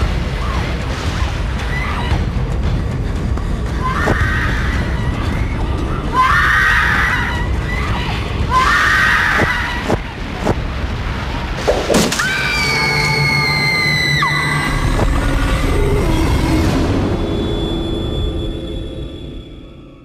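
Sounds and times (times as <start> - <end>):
low rumbling drone: 10.1 - 20.0.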